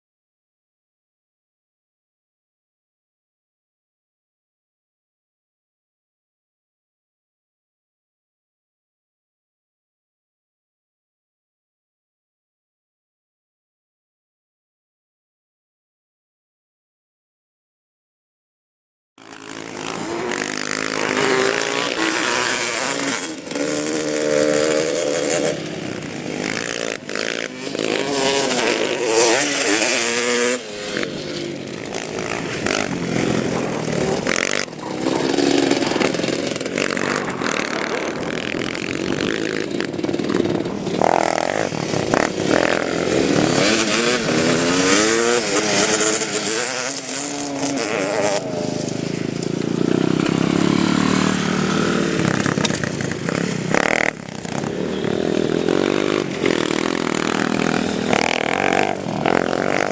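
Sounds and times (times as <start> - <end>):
small motorcycle engines revving: 19.2 - 59.9.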